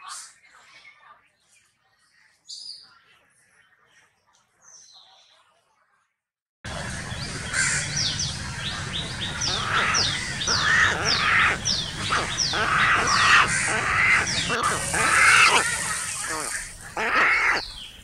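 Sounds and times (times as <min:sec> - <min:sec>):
birds calling harshly: 0:06.7 - 0:18.0.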